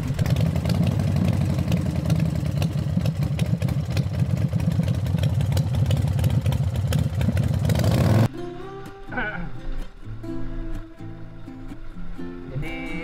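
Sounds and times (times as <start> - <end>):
motorcycle engine idling: 0.0 - 8.3.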